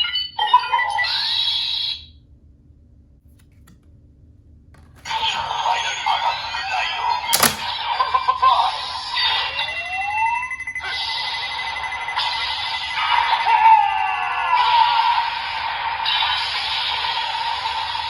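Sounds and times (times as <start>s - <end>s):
sharp click: 7.4s - 7.7s.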